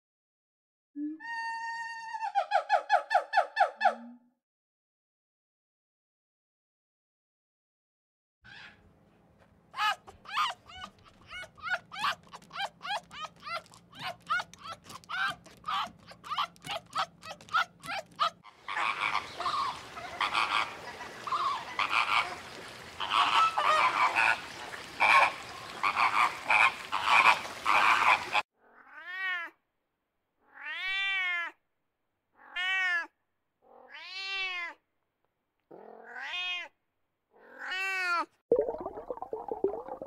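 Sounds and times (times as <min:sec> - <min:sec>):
tiger cub mewing: 0:09.8 - 0:20.8
flamingos honking: 0:18.5 - 0:28.4.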